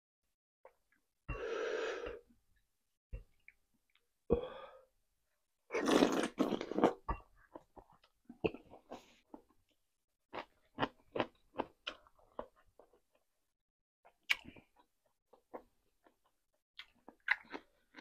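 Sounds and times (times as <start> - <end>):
slurp: 5.7 - 7.0.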